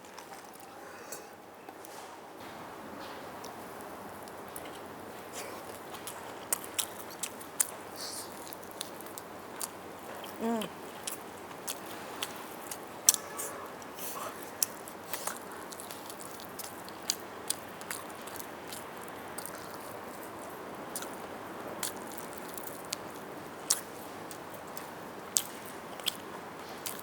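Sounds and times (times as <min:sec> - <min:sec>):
biting and chewing: 0:03.4 - 0:27.0
person humming: 0:10.4 - 0:10.7
wet smacks and clicks: 0:14.6 - 0:21.2, 0:21.8 - 0:27.0.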